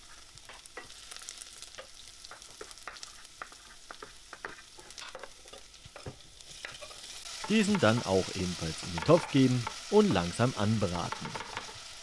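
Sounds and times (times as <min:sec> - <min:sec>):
onion and garlic sizzling in oil: 0:00.0 - 0:12.0.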